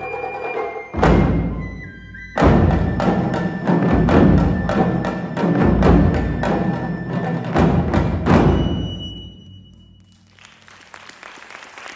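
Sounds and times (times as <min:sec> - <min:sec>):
drum ensemble playing: 0:00.0 - 0:09.4
faint applause: 0:10.1 - 0:11.9.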